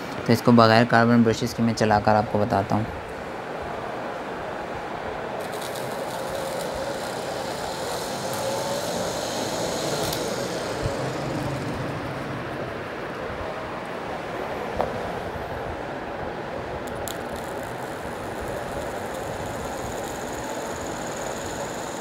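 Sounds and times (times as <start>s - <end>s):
crackling of leads on commutator: 5.3s - 12.5s, 16.8s - 22.0s
small motor whining: 5.4s - 12.6s, 16.9s - 22.0s.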